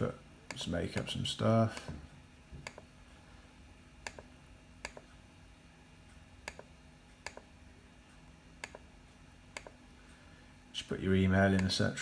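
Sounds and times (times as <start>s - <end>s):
faint steady hum: 0.0s - 12.0s
laptop keys clicking: 8.6s - 8.9s.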